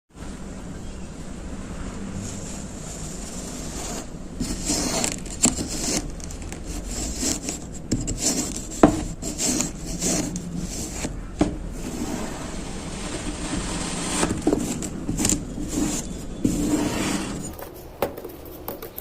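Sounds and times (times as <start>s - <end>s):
knife cutting through sand: 11.8s - 17.5s.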